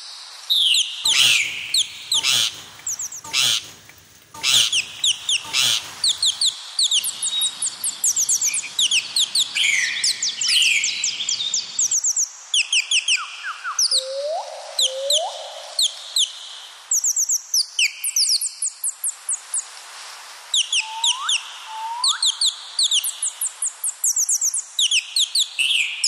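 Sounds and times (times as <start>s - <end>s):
birds chirping: 1.0s - 11.7s.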